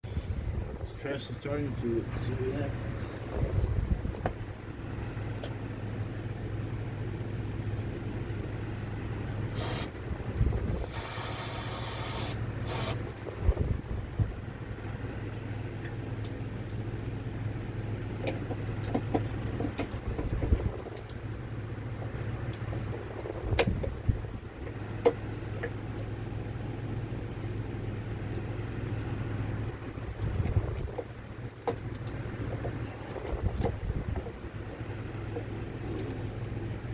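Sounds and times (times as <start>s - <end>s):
steady low hum: 0.0s - 36.9s
aerosol spray hiss: 9.6s - 9.9s, 10.8s - 13.0s.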